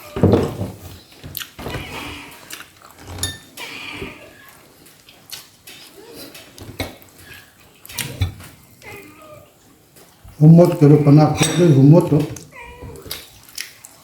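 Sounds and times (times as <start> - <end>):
dishes and cutlery clinking: 0.0 - 9.2, 10.7 - 13.4
person chewing: 1.3 - 8.2, 12.4 - 14.0.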